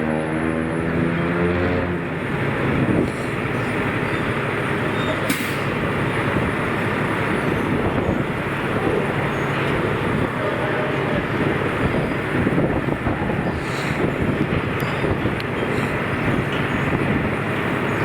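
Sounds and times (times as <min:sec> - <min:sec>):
engine humming: 0:00.0 - 0:18.0
traffic noise: 0:00.0 - 0:18.0
sharp click: 0:05.3 - 0:05.7.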